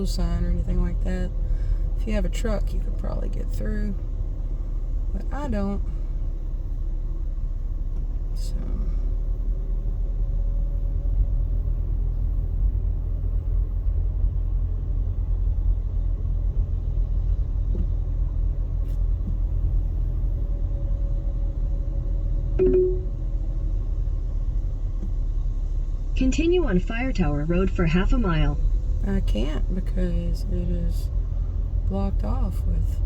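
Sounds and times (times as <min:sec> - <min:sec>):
car road and engine rumble: 0:00.0 - 0:33.0
short pitched sound: 0:22.6 - 0:23.1.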